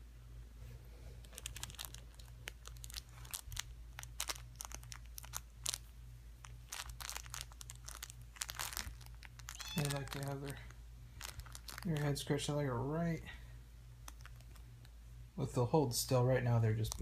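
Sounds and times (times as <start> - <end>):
kittens scratching and clicking: 14.0 - 14.8.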